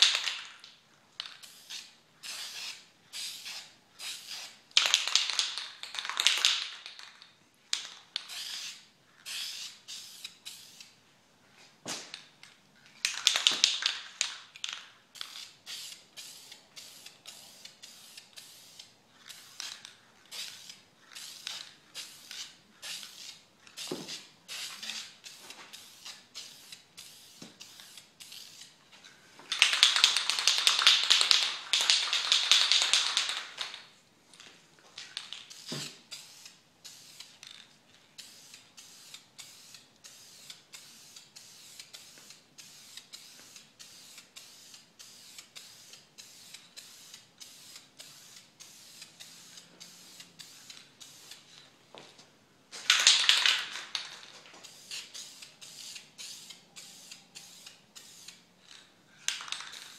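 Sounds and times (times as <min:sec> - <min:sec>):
spray can ball rattling: 0:00.0 - 0:11.0, 0:11.9 - 0:51.7, 0:52.7 - 0:59.9
spray paint hissing: 0:01.4 - 0:06.7, 0:08.2 - 0:11.0, 0:15.1 - 0:28.8, 0:35.3 - 0:37.4, 0:38.2 - 0:51.6, 0:52.9 - 0:58.5.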